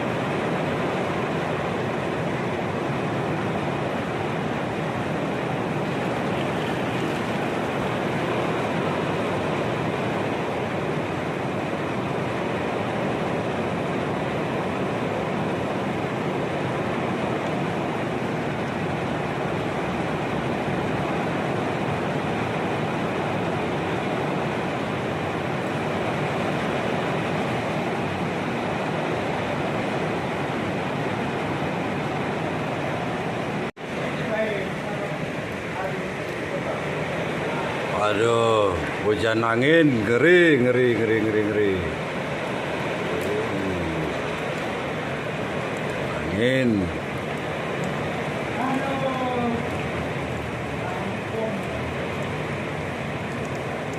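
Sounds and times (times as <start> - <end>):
heavy rain in wind: 0.0 - 53.9.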